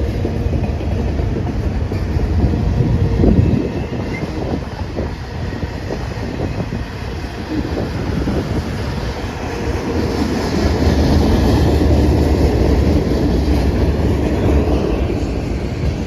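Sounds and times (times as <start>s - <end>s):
wheels clacking over rail joints: 0.0s - 5.0s
freight train rumbling: 0.0s - 16.0s.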